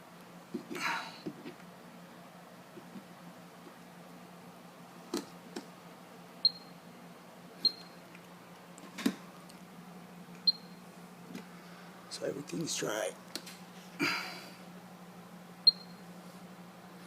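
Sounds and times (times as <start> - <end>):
steady low hum: 0.0 - 17.0
moisture meter short high beeps: 6.4 - 6.7, 7.6 - 7.9, 15.7 - 16.0.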